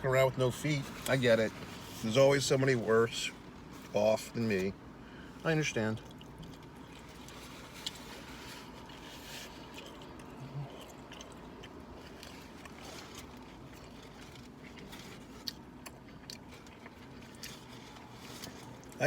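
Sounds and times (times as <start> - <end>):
person chewing: 6.0 - 19.0.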